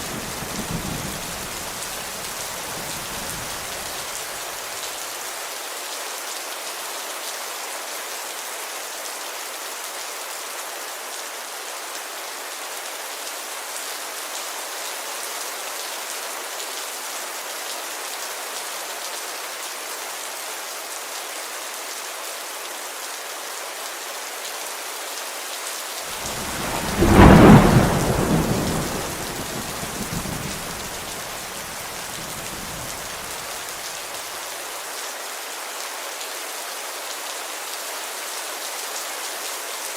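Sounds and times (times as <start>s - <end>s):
rain falling on a window: 0.0s - 10.8s, 23.8s - 39.9s
thunder clap rumbling: 26.2s - 33.5s.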